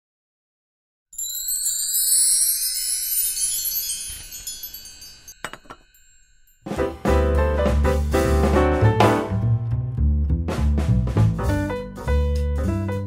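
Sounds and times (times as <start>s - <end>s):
shimmering magical chime: 1.2s - 6.8s
piano music: 6.7s - 13.0s.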